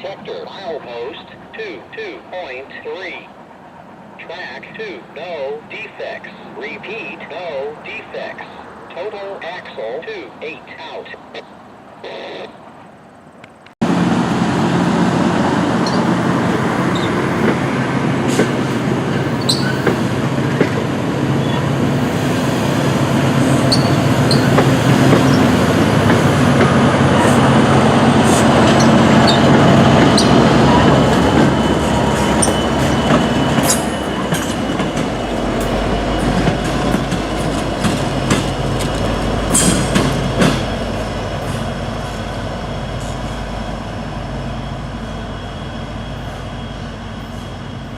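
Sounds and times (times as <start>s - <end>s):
train wheels rumbling on rails: 13.5s - 47.9s
high wheel squeal: 15.8s - 17.4s, 19.2s - 20.0s, 23.4s - 26.5s, 27.1s - 37.4s.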